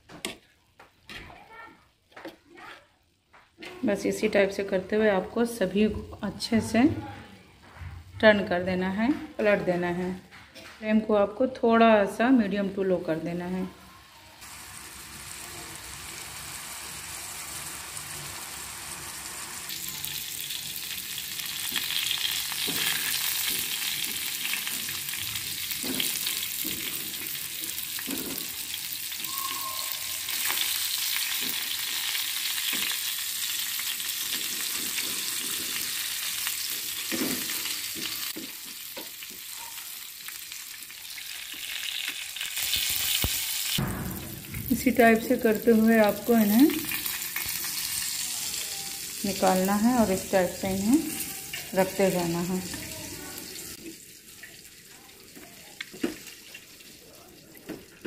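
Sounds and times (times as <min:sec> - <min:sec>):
meat frying in oil: 0:14.0 - 0:58.0.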